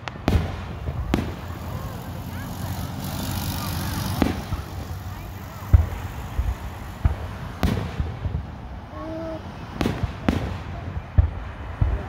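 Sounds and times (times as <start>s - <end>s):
low rumble of firework bursts: 0.0s - 12.0s.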